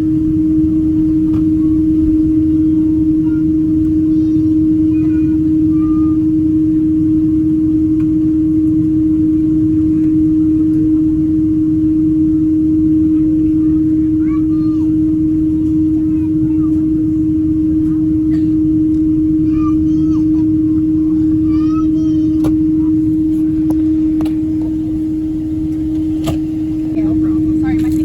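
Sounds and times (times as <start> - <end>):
aircraft cabin drone: 0.0 - 28.0
constant hum tone: 0.0 - 28.0
faint voices: 1.2 - 6.8, 12.8 - 28.0.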